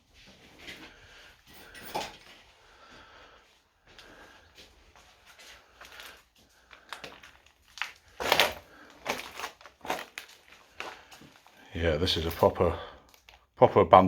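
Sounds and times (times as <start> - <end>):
crunching clatter: 6.7 - 11.2.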